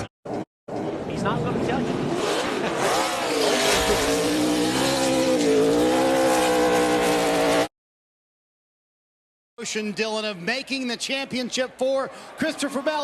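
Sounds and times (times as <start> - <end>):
race car engine at high revs: 0.3 - 7.7.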